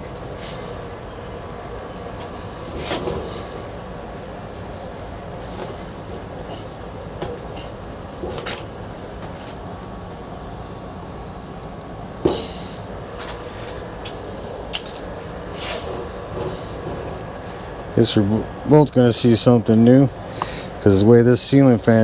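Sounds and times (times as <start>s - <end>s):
small metal parts clinking: 14.7s - 15.3s.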